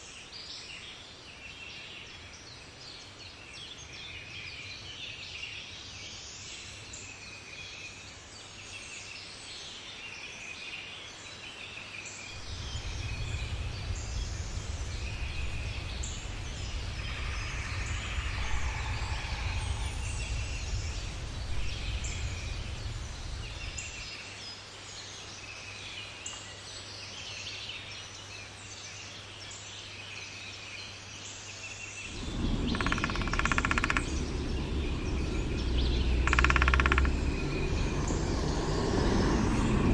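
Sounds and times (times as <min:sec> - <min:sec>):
small birds chirping: 0:00.0 - 0:39.9
low rumble: 0:12.3 - 0:24.2, 0:32.0 - 0:39.9
harsh bird call: 0:32.1 - 0:38.2.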